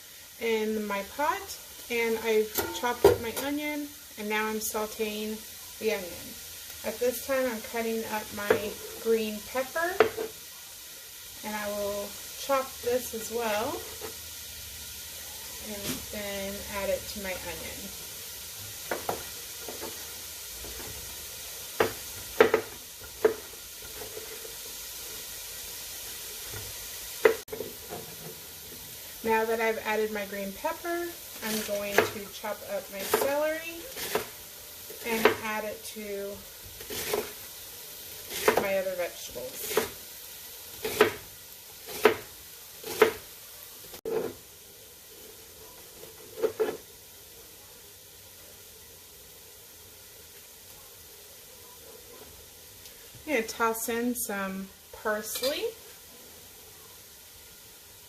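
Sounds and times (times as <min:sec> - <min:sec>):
faint steady hiss: 0:00.0 - 0:58.0
onion sizzling in oil: 0:00.0 - 0:58.0
knife chopping on cutting board: 0:40.8 - 0:41.2, 0:41.9 - 0:43.2.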